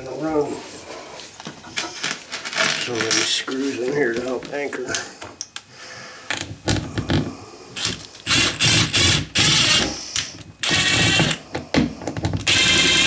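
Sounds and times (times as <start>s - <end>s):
power driver whining: 6.4s - 11.4s, 12.3s - 13.0s.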